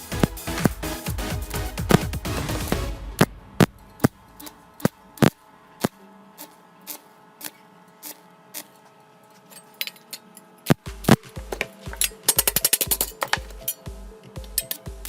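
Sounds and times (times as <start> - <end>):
background music: 0.0 - 4.7, 10.8 - 15.0
clicking percussion strikes: 10.7 - 15.0.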